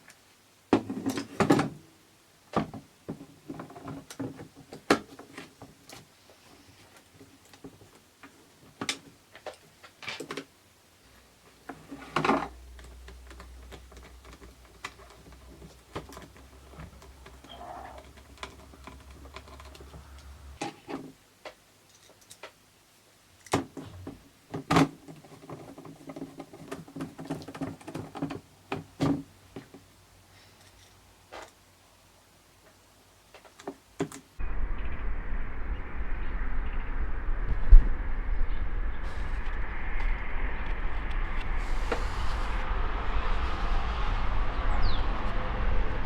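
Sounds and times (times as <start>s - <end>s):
low steady hum: 34.4s - 46.0s.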